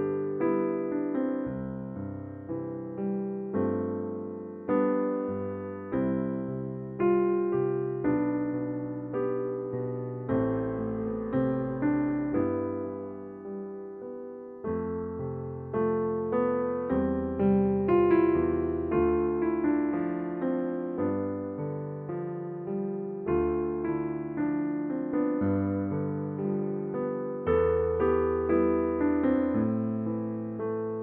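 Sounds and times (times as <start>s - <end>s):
soft electric piano music: 0.0s - 31.0s.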